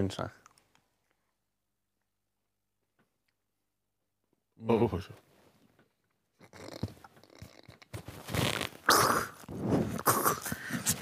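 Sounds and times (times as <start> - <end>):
mouth clicks: 6.4 - 7.9, 8.8 - 11.0
wet chewing: 6.4 - 7.9.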